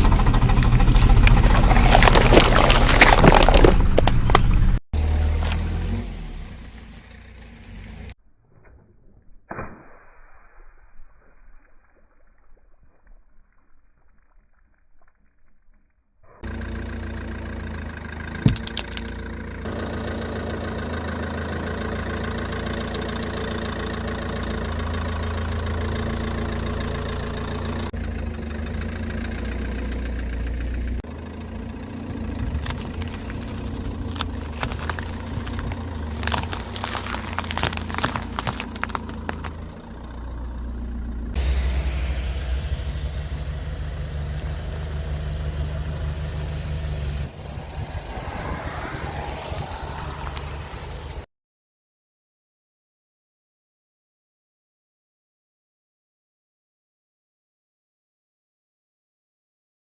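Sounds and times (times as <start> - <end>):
sharp crack: 0.0 - 4.7, 8.5 - 14.4, 34.0 - 39.7
car engine running: 0.0 - 8.2, 16.4 - 51.3.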